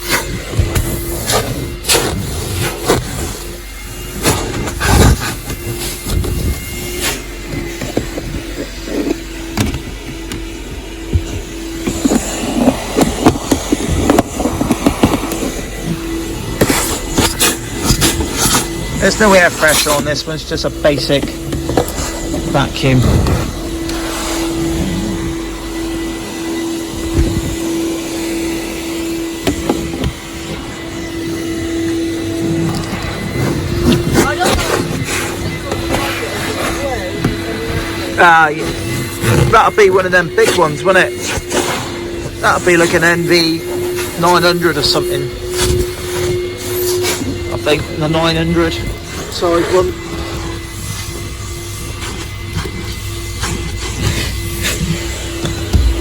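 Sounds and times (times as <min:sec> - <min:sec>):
car vacuum humming: 0:00.0 - 0:56.0
vacuum nozzle knocking on car: 0:51.8 - 0:56.0.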